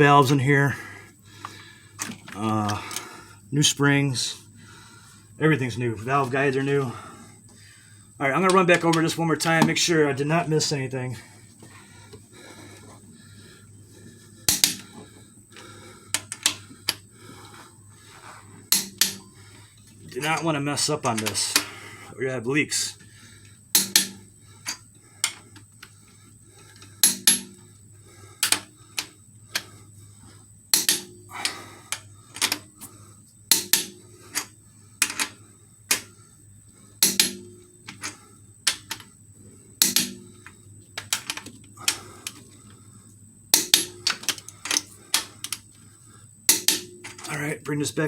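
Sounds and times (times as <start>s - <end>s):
faint steady hum: 0.0s - 48.0s
torque wrench clicks: 14.5s - 15.0s.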